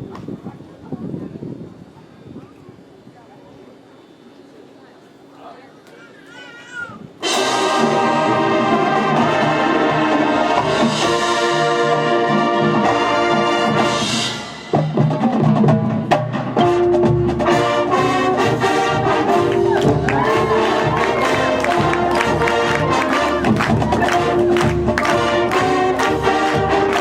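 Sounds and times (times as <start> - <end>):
brass band playing: 7.2 - 27.0.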